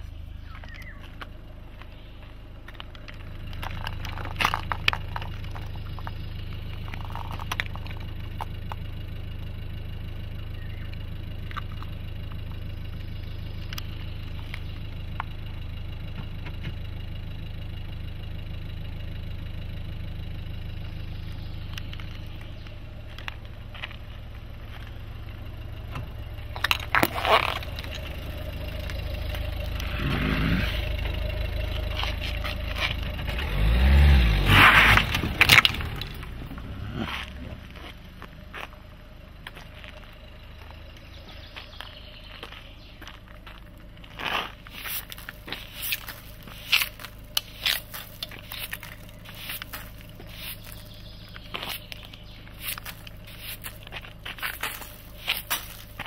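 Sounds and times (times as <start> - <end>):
car engine idling: 0.0 - 56.0
plastic toys clicking on pavement: 0.6 - 9.4, 10.9 - 12.7, 21.7 - 24.9, 26.4 - 30.0, 34.8 - 38.7, 42.4 - 56.0.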